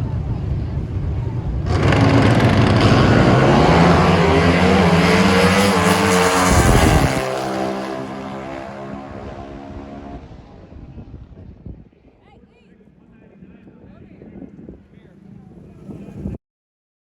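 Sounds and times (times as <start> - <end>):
drag racing motorcycle engines: 0.0 - 12.1.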